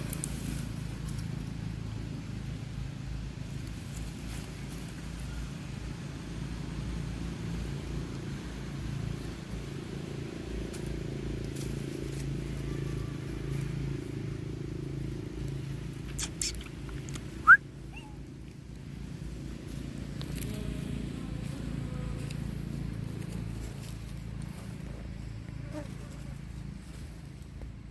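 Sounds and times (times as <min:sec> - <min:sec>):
monkey squeak: 0:16.1 - 0:16.8, 0:17.4 - 0:18.2.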